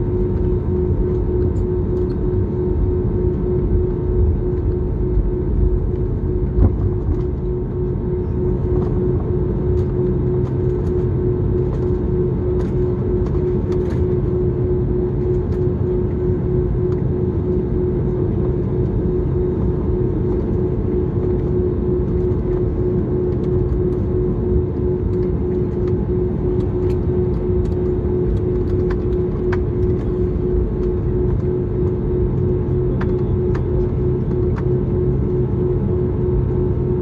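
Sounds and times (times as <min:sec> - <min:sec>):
airliner cabin engine rumble: 0:00.0 - 0:37.0.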